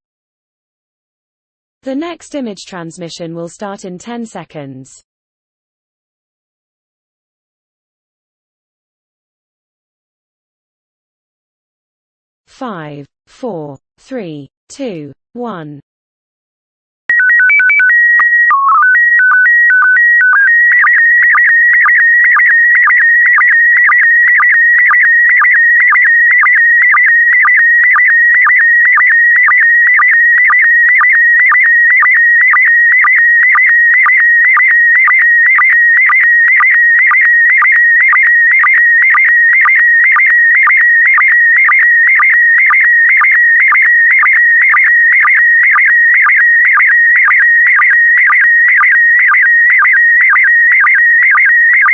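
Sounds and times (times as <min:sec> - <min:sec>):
stepped electronic beeps: 0:17.1 - 0:51.9
warbling electronic tone with ticks: 0:17.1 - 0:51.9.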